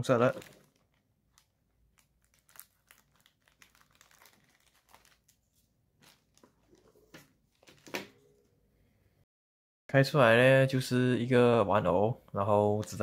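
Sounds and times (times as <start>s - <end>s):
plastic packaging crinkling and tearing: 0.0s - 7.9s.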